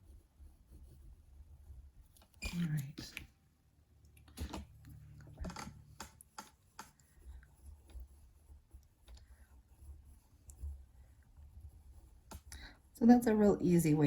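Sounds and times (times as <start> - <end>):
drawing tool scratching on paper: 0.0 - 2.9, 5.8 - 14.0.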